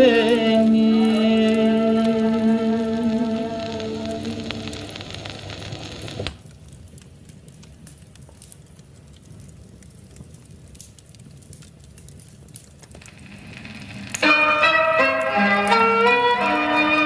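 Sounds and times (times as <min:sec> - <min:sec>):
song music: 0:00.0 - 0:05.5, 0:13.3 - 0:17.0
wood fire crackling: 0:00.0 - 0:17.0.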